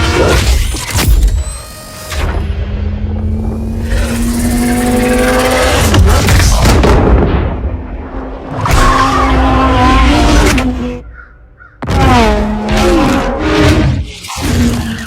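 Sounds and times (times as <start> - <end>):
car engine at high revs: 2.5 - 6.2.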